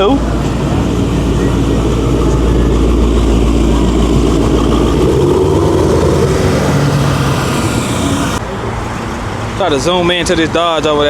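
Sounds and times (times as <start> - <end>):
car exhaust rumble: 0.0 - 8.4.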